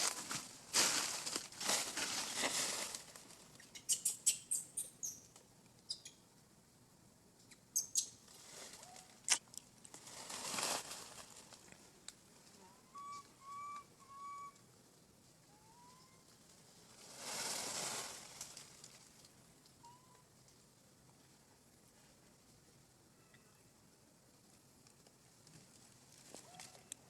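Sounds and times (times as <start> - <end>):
short whistle-like calls: 3.8 - 5.2, 12.9 - 14.6.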